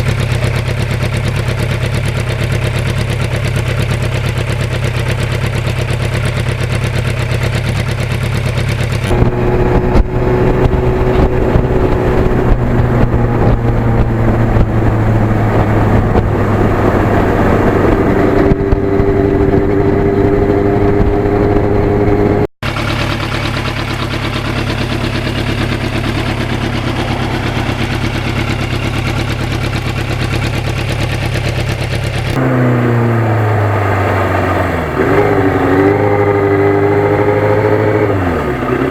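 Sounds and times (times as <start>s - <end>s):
motorcycle engine running: 0.0s - 38.9s
wind and road noise: 8.9s - 38.9s.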